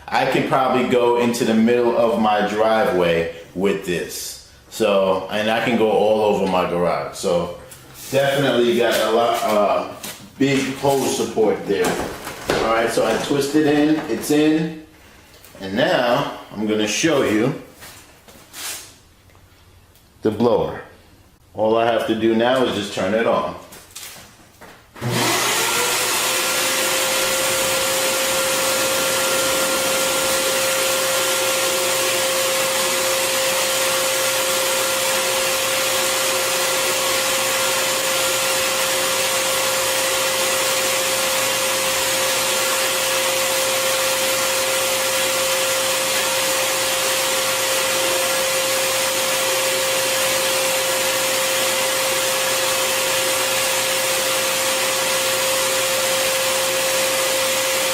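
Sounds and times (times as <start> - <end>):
vacuum blower whine and air rush: 25.0 - 57.9.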